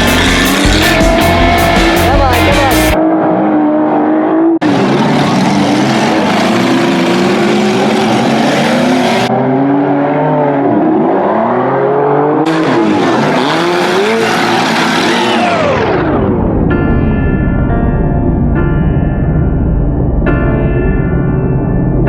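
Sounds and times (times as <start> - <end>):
race car engines revving: 0.0 - 16.6.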